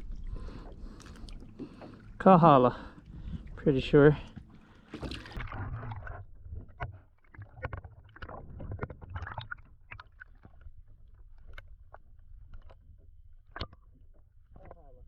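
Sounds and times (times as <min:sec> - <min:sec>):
small water splashes: 0:00.0 - 0:11.7
wind and water rumble: 0:00.0 - 0:15.0.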